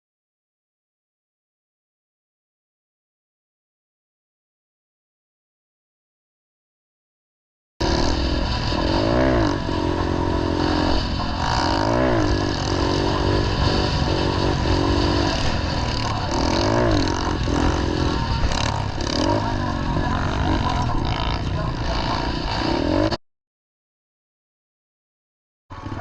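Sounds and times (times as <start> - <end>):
small motorbike engine revving: 7.8 - 23.2.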